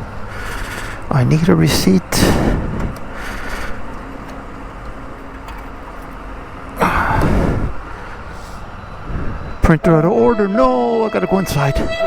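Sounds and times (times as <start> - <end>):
outdoor traffic noise: 0.0 - 12.0.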